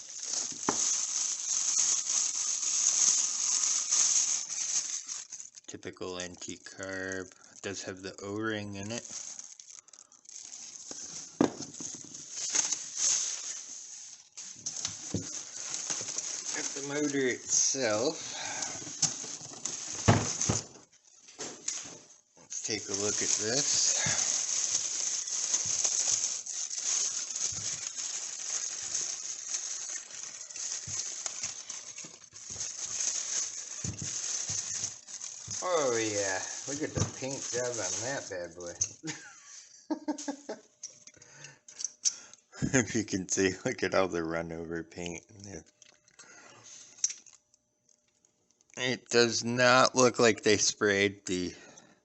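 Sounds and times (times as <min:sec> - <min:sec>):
packaging rustling: 0:00.0 - 0:39.0, 0:45.8 - 0:48.8
steady hiss: 0:10.5 - 0:20.8, 0:21.4 - 0:40.6.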